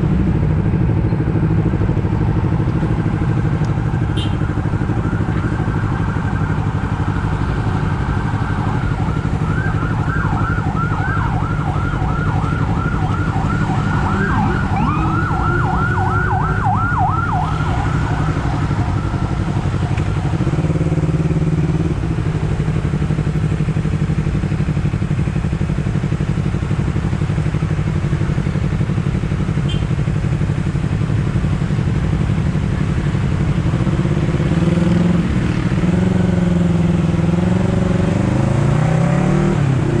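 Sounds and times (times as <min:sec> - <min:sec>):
motorcycle engine running: 0:00.0 - 0:40.0
emergency vehicle siren: 0:01.2 - 0:24.3.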